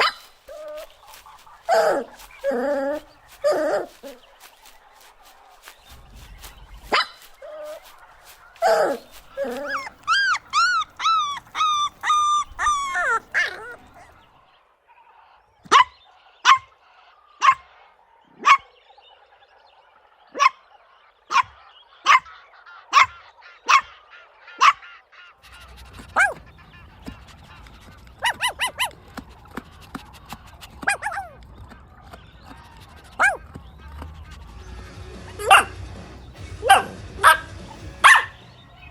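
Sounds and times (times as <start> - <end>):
puppies yelping: 0.0 - 14.3, 24.6 - 38.9
puppies barking: 0.0 - 14.4, 17.4 - 17.8, 18.4 - 18.7, 21.3 - 22.3, 22.9 - 24.0, 24.6 - 38.9.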